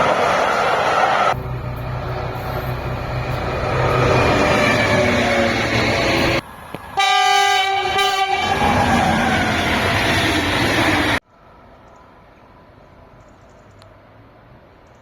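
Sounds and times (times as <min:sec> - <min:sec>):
train passing at speed: 0:00.0 - 0:13.2
locomotive horn: 0:07.0 - 0:08.8.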